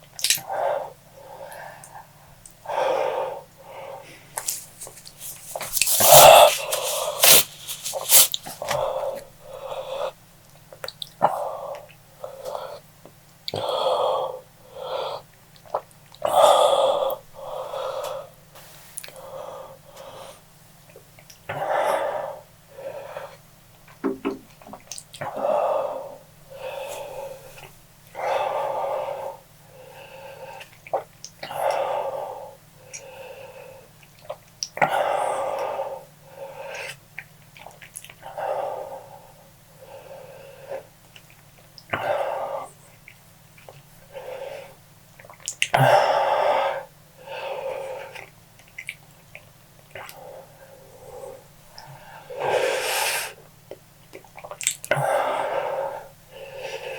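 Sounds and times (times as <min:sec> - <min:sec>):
person breathing hard: 0:00.4 - 0:10.2, 0:13.6 - 0:15.3, 0:16.2 - 0:20.5, 0:21.5 - 0:23.4, 0:25.2 - 0:30.7, 0:31.4 - 0:34.0, 0:38.2 - 0:41.0, 0:44.0 - 0:44.8, 0:45.8 - 0:48.3, 0:50.0 - 0:53.5, 0:54.9 - 0:56.9.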